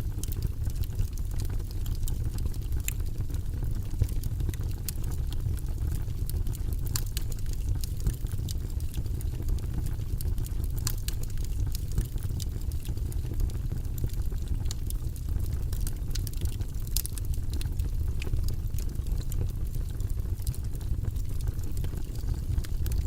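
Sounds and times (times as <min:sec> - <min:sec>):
fire crackling: 0:00.0 - 0:23.0.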